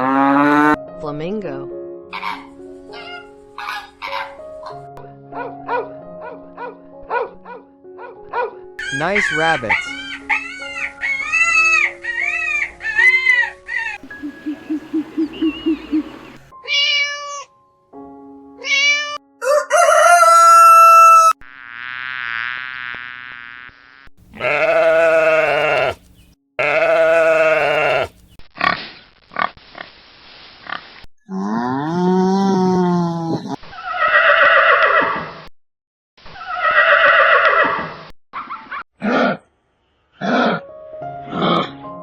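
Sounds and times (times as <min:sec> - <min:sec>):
animal calls: 0:02.1 - 0:04.8, 0:08.8 - 0:16.5, 0:24.4 - 0:26.0, 0:26.6 - 0:28.8
call rising and falling in pitch: 0:13.9 - 0:16.4.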